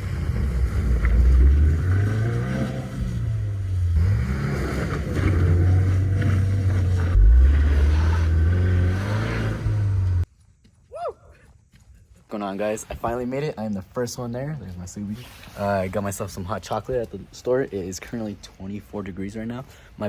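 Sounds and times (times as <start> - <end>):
car engine under throttle: 0.0 - 10.3.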